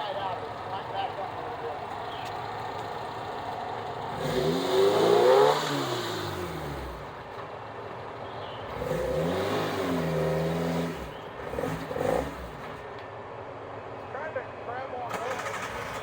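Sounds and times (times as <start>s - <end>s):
off-road vehicle engine revving: 2.1s - 7.4s, 8.5s - 12.9s, 15.1s - 16.0s.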